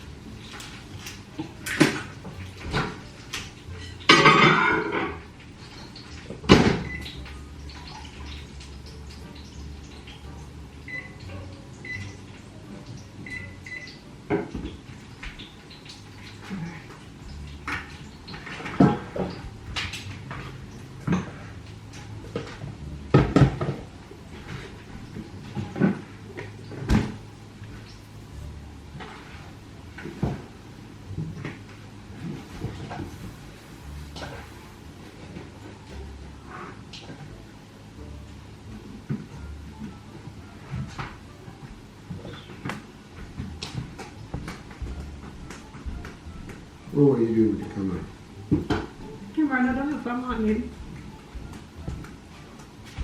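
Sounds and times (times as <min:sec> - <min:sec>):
dishes and utensils clinking: 0:00.0 - 0:12.2
low steady hum: 0:00.0 - 0:53.0.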